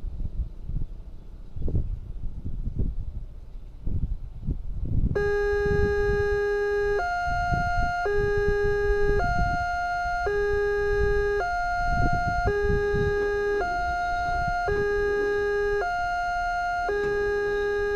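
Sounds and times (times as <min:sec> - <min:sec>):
wind and traffic rumble: 0:00.0 - 0:17.9
two-tone crossing warning siren: 0:05.2 - 0:17.9.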